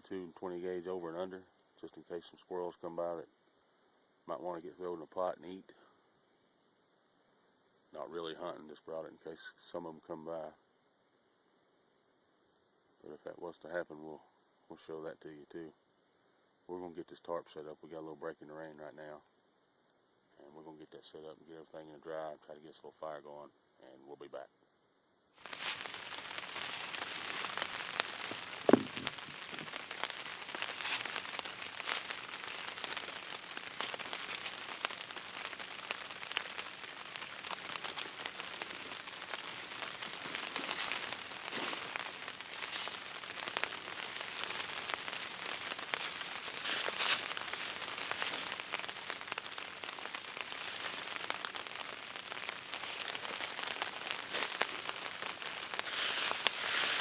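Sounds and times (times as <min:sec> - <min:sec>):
raindrop hits: 0:25.4 - 0:57.0
steady rain falling: 0:25.4 - 0:57.0.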